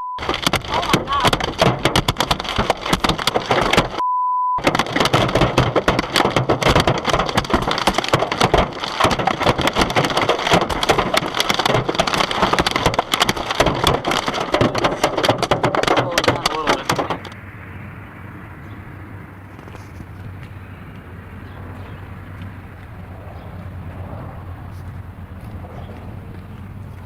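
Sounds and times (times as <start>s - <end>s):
censor beep: 0.0s - 0.2s, 4.0s - 4.6s
heavy rain or hail on a car: 0.2s - 4.0s, 4.6s - 17.4s.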